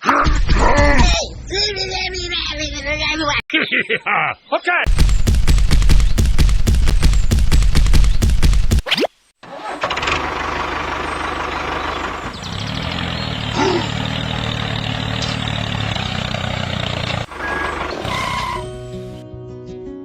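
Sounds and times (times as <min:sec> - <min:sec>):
tractor engine running: 0:04.9 - 0:08.8, 0:09.4 - 0:19.2
mechanical sound: 0:04.9 - 0:09.0.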